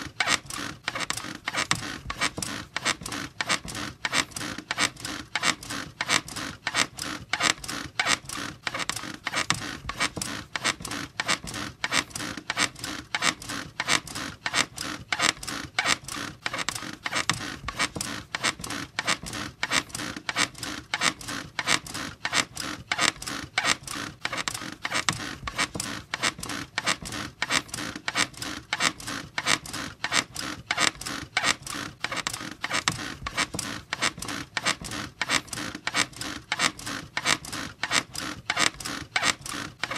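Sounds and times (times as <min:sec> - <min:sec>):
bed squeaking: 0:15.2 - 0:20.5.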